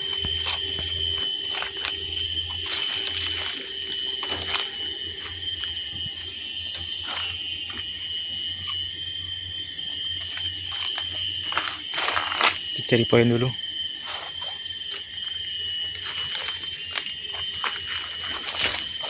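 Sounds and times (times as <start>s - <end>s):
cicadas droning: 0.0s - 19.0s.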